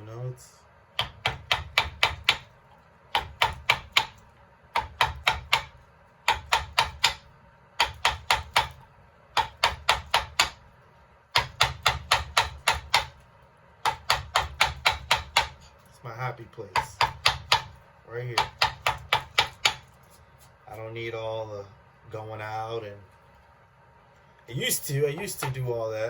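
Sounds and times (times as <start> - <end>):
mallet tapping chisel into wood: 1.0 - 2.5, 3.1 - 4.2, 4.8 - 8.8, 9.4 - 10.6, 11.3 - 13.2, 13.8 - 15.6, 16.8 - 17.8, 18.4 - 19.9.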